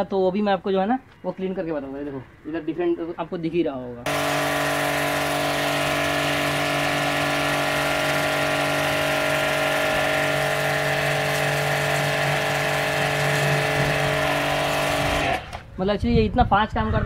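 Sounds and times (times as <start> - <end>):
spray jet hissing on wall: 4.1 - 15.6
pressure washer motor hum: 4.1 - 15.7.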